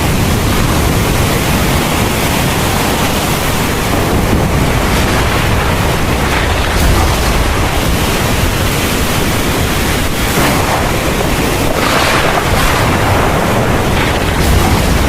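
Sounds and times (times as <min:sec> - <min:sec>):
heavy rain: 0:00.0 - 0:15.0.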